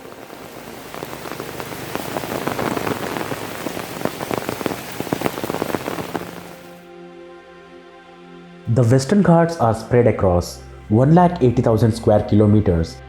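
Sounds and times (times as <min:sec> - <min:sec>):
rain patter on a surface: 0:00.0 - 0:06.8.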